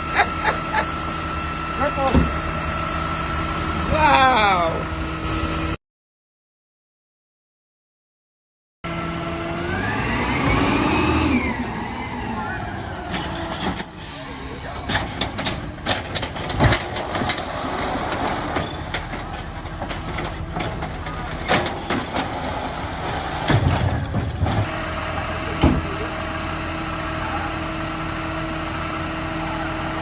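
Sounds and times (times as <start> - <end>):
diesel engine running: 0.0 - 5.8, 8.9 - 30.0
sharp knocks and clatter: 14.9 - 22.4.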